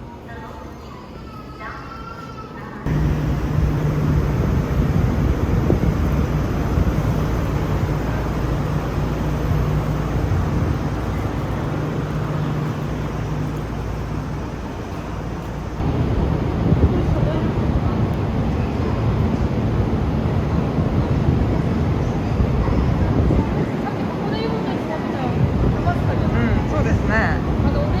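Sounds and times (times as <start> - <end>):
constant low hum: 2.9 - 18.4
vehicle engine rumble: 2.9 - 23.8.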